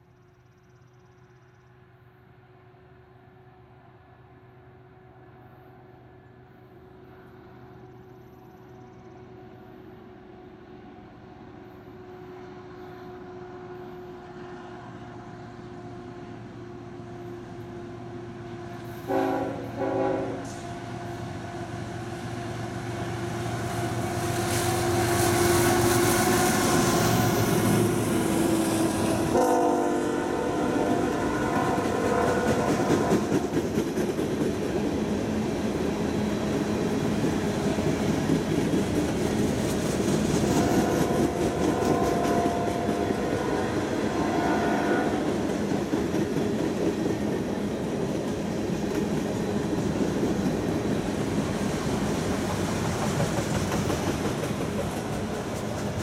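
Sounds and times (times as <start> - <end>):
diesel locomotive engines: 0.0 - 56.0
locomotive horn blasts: 18.9 - 20.9, 28.6 - 33.2, 40.7 - 45.3.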